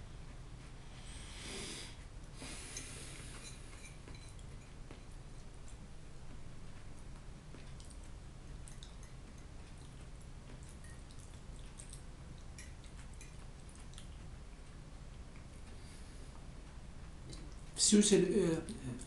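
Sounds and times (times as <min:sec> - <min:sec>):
steady low hum: 0:00.0 - 0:19.0
fork scraping ceramic plate: 0:02.6 - 0:04.7
chewing with wet mouth clicks: 0:03.3 - 0:15.8, 0:16.7 - 0:17.8.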